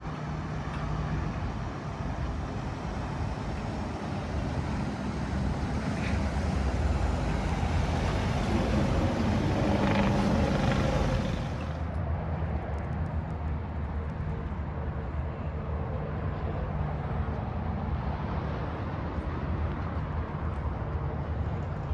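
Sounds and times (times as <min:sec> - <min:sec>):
vehicle engine humming: 0:01.9 - 0:11.8.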